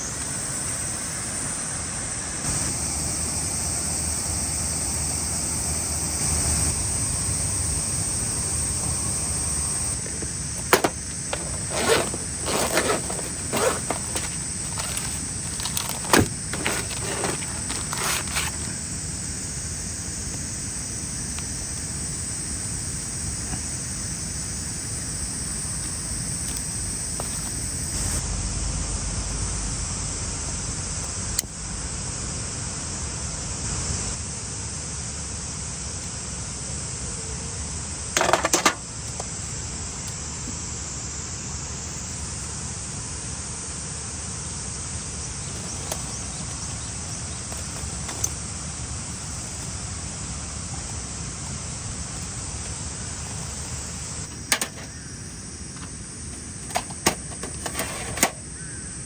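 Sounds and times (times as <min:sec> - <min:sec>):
insect drone: 0:00.0 - 0:59.0
small knocks and clatters: 0:10.0 - 0:18.7.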